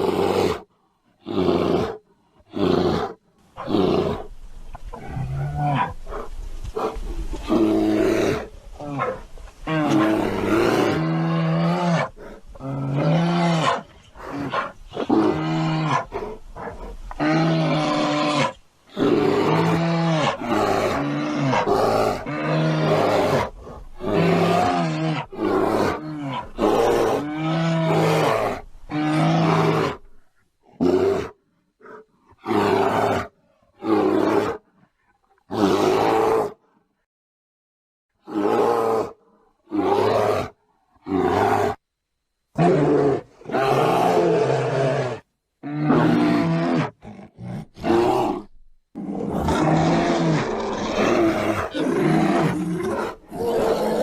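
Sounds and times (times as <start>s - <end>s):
bear roar sound effect: 6.8s - 30.1s, 42.5s - 54.0s.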